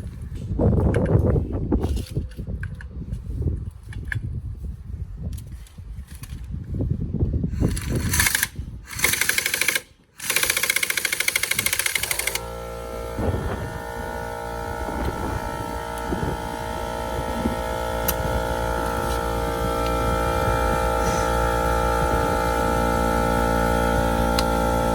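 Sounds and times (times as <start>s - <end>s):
impact wrench hammering: 7.6s - 24.9s
steady hum with held tones: 11.6s - 24.9s.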